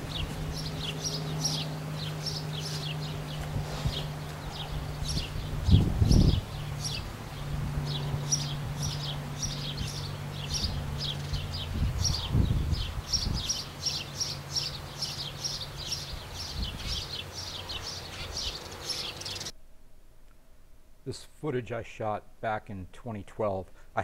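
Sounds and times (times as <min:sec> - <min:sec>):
low rumbles: 0:00.0 - 0:18.0
small bird chirping: 0:00.0 - 0:19.5
steady low hum: 0:00.0 - 0:21.1.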